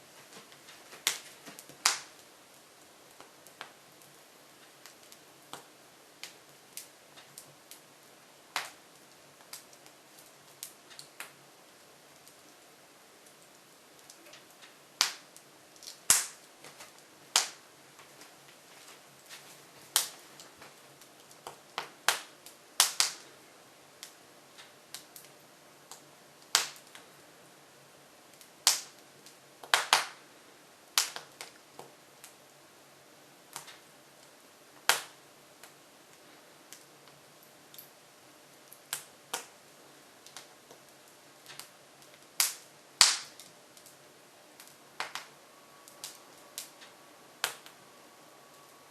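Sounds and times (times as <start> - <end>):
logs crackling in a wood stove: 0.0 - 48.9
sharp pops of burning wood: 0.3 - 2.3, 3.1 - 7.8, 8.5 - 11.4, 13.2 - 23.4, 24.0 - 27.1, 28.3 - 30.2, 31.0 - 32.5, 33.5 - 37.9, 38.7 - 39.6, 40.2 - 44.0, 44.6 - 45.3, 45.9 - 47.8.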